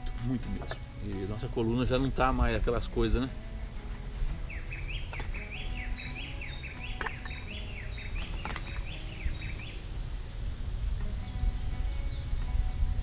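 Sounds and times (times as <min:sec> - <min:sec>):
wind rumble on microphone: 0:00.9 - 0:13.0
songbird whistling: 0:04.3 - 0:13.0
tableware clicking: 0:06.9 - 0:07.4.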